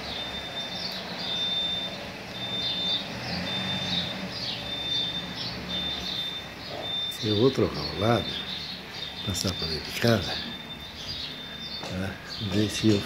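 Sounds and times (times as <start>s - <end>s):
bird chirping and whistling: 0.0s - 13.0s.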